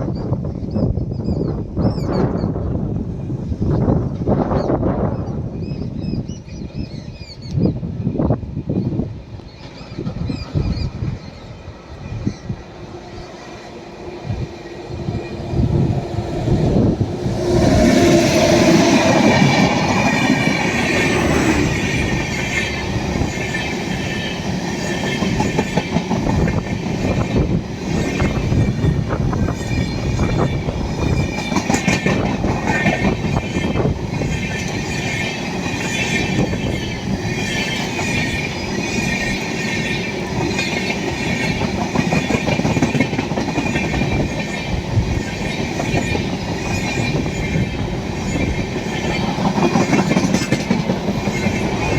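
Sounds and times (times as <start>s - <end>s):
train passing at speed: 0.0s - 51.9s
wheels clacking over rail joints: 13.4s - 51.9s.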